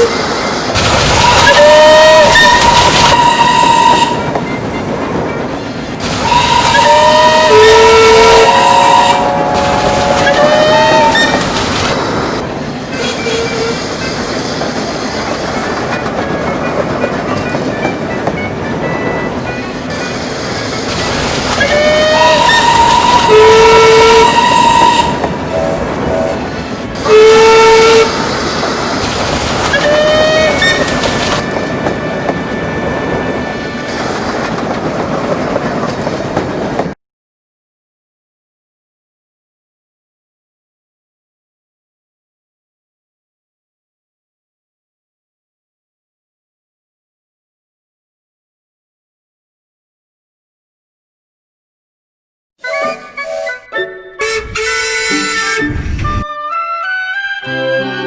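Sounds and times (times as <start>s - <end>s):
train whistle: 1.2s - 4.3s, 6.2s - 11.5s, 13.0s - 14.2s, 21.6s - 26.4s, 27.0s - 28.6s, 29.7s - 34.0s, 54.2s - 56.2s
train wheels clicking over rail joints: 9.4s - 23.3s, 28.1s - 37.0s.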